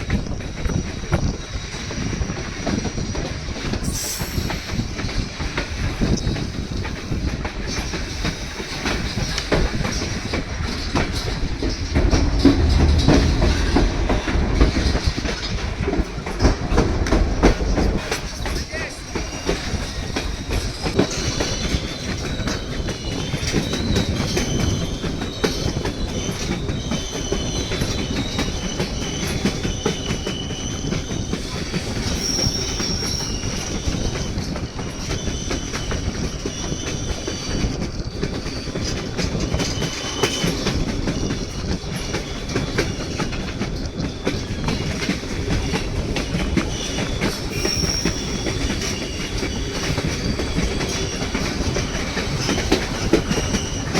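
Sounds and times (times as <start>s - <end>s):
train rumbling: 0.0s - 53.9s
high wavering wheel squeal: 32.0s - 37.5s, 46.7s - 53.9s.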